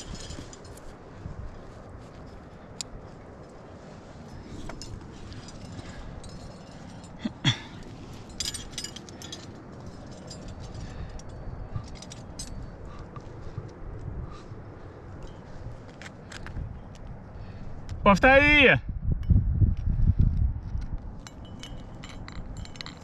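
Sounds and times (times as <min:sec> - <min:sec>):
metal climbing gear clinking: 0:00.0 - 0:17.0, 0:21.1 - 0:23.0
wind rumble on microphone: 0:00.0 - 0:23.0.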